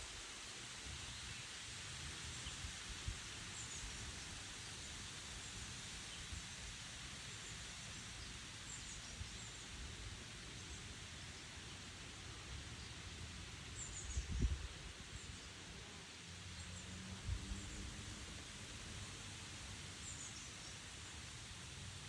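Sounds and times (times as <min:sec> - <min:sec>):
wind rustling tree leaves: 0:00.0 - 0:22.0
low wind rumble: 0:12.6 - 0:15.5.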